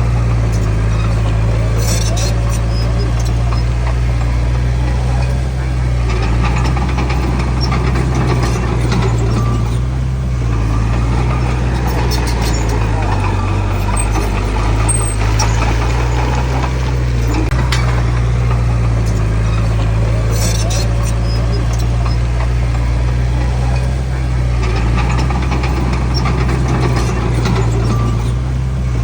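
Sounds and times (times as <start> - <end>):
heavy diesel engine running: 0.0 - 29.0.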